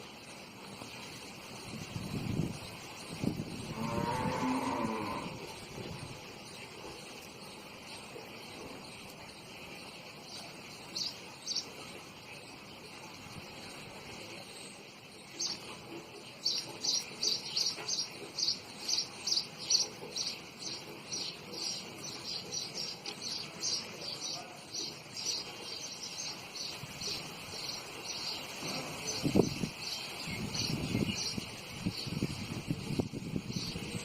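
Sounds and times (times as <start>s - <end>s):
crickets buzzing: 0.0s - 15.6s.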